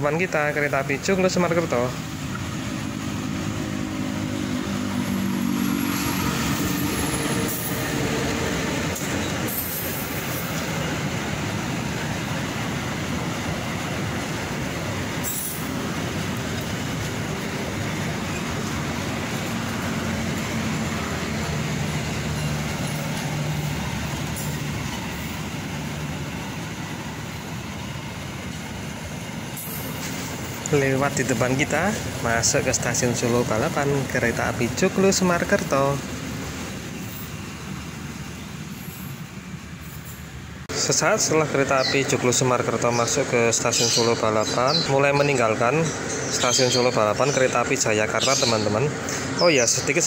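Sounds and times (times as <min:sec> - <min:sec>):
locomotive engine hum: 0:00.0 - 0:50.0
train wheels rumbling on rails: 0:00.0 - 0:50.0
high wheel squeal: 0:01.5 - 0:27.6, 0:29.4 - 0:40.4.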